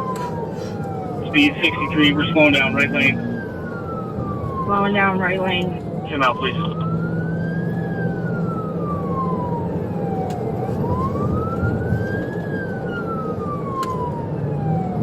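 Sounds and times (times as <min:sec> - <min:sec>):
engine and road noise: 0:00.0 - 0:15.0
police siren wailing: 0:00.0 - 0:15.0.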